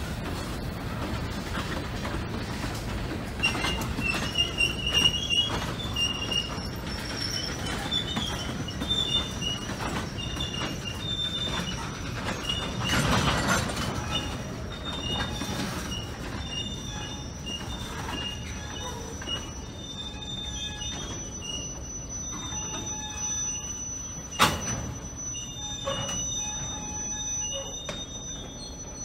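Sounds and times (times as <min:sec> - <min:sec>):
train wheels rumbling on rail: 0:00.0 - 0:29.0
high wheel squeal: 0:03.3 - 0:29.0.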